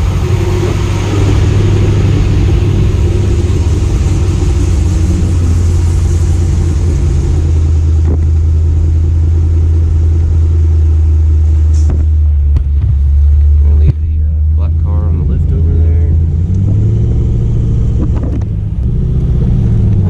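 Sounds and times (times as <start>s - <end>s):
car engine droning: 0.0s - 20.0s
road noise: 0.0s - 20.0s.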